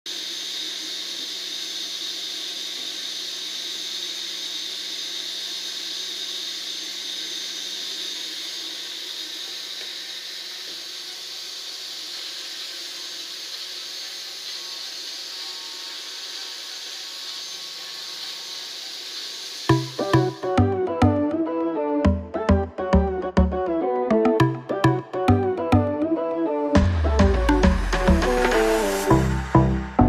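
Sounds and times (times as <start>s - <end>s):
small electric motor whining: 0.1s - 20.6s, 27.6s - 29.6s.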